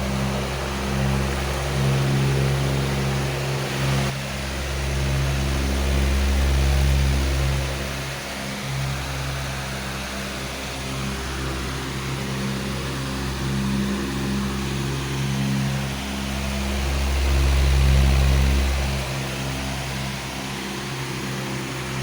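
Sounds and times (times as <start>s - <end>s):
electric fan running: 0.0s - 22.0s.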